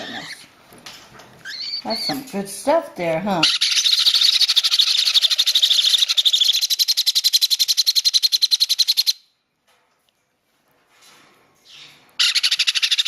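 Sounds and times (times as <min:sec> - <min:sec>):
parrot chick pulsing call: 0:03.4 - 0:09.2, 0:12.2 - 0:13.0.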